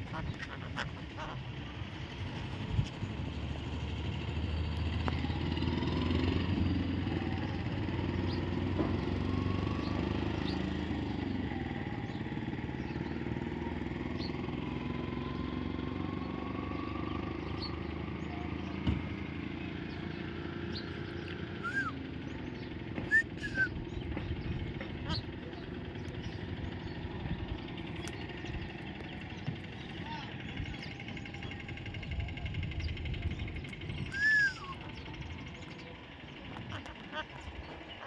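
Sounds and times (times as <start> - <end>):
steady low rumble: 0.0 - 5.5, 19.0 - 38.0.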